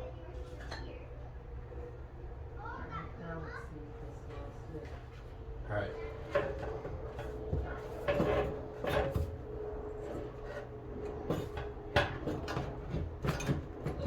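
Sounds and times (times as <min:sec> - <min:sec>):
metal exhaust pipe clunking and scraping: 0:06.2 - 0:14.0.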